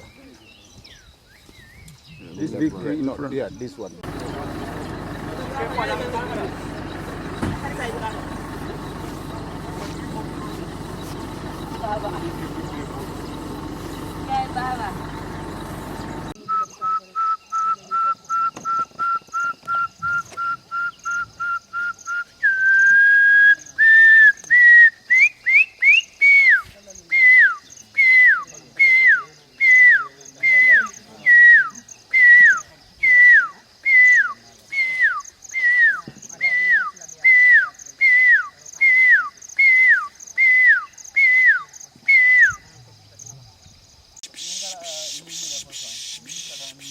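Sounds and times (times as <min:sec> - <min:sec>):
bird singing whistled notes: 0:00.0 - 0:02.5, 0:16.0 - 0:42.8.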